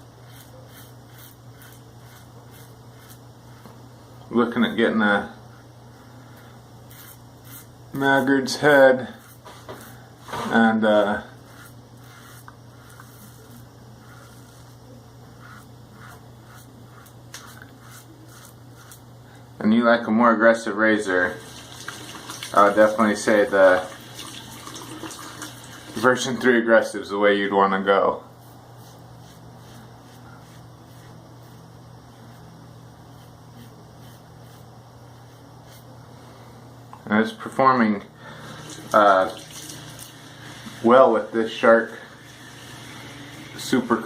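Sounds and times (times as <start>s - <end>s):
razor scraping stubble: 0.0s - 3.8s, 6.4s - 19.1s, 28.4s - 35.9s
steady low hum: 0.0s - 21.5s, 25.6s - 44.0s.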